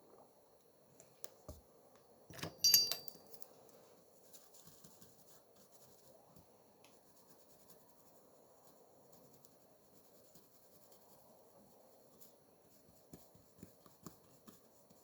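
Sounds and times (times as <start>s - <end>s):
small tools clattering: 2.3s - 3.5s
faint taps and scratches: 4.3s - 7.9s, 9.1s - 15.0s.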